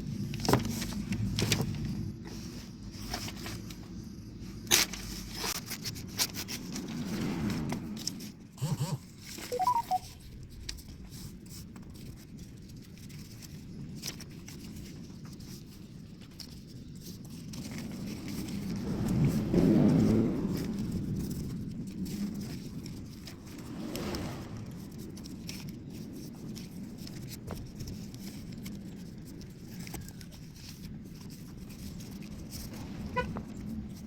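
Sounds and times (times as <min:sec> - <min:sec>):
paper being folded and creased: 0:00.1 - 0:08.4, 0:09.1 - 0:34.0.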